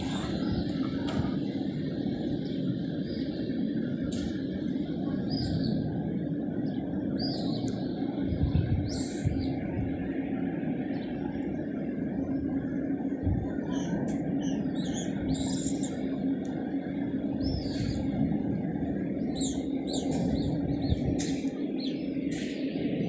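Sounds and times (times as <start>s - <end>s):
steady low hum: 0.0s - 23.0s
birds chirping: 10.7s - 23.0s.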